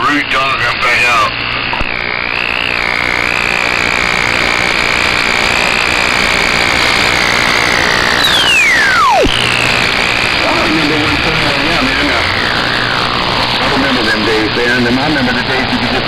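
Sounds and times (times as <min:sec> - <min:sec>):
radio hiss: 0:00.0 - 0:16.0
wavering whistle tone: 0:02.3 - 0:14.0
whistle sweeping down in pitch: 0:08.1 - 0:09.7.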